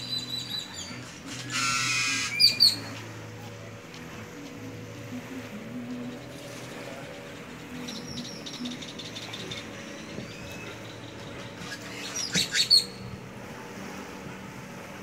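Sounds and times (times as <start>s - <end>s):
birds chirping: 0.0s - 3.2s, 5.6s - 13.2s.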